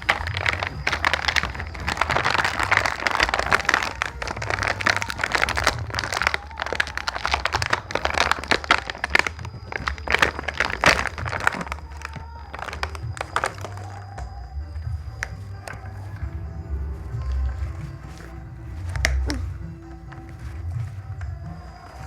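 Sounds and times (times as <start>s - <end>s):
plastic toy pieces clattering: 0.0s - 13.8s
crinkling: 0.0s - 22.0s.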